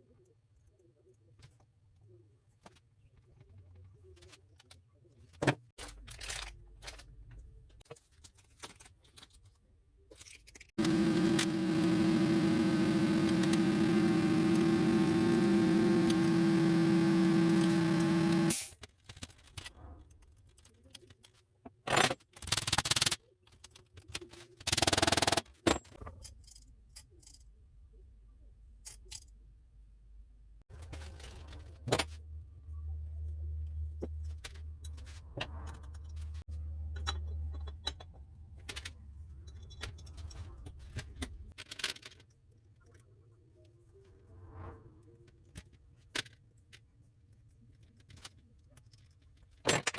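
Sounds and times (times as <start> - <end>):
low hum: 10.8 - 18.6
motorised tool running: 10.8 - 18.6.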